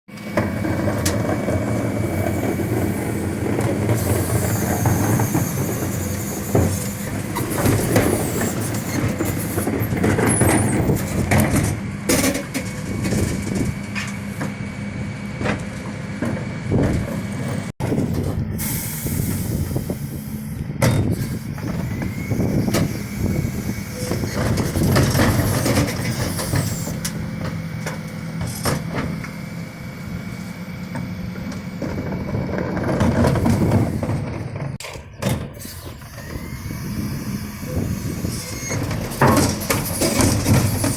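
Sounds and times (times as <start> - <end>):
refuse truck running: 0.1 - 40.9
bins clanking and banging: 0.2 - 14.6, 24.0 - 29.4, 31.4 - 35.7, 38.6 - 40.9.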